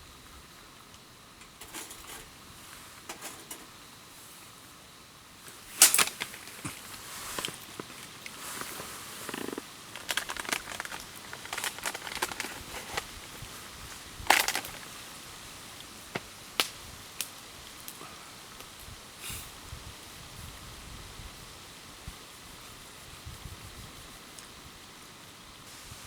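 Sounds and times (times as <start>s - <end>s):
wood campfire crackling: 0.2s - 19.5s.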